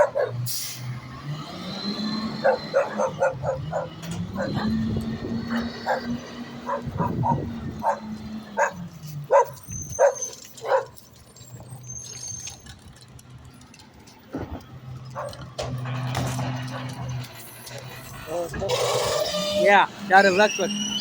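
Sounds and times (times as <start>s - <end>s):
dog barking: 0.0s - 0.4s, 2.4s - 4.9s, 5.5s - 11.0s, 15.1s - 15.4s.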